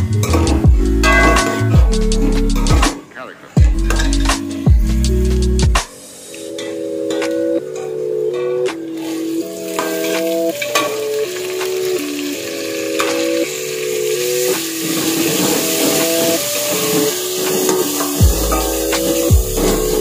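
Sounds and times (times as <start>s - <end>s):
soft background music chords: 0.0s - 20.0s
vegetables sizzling in hot oil: 8.9s - 20.0s.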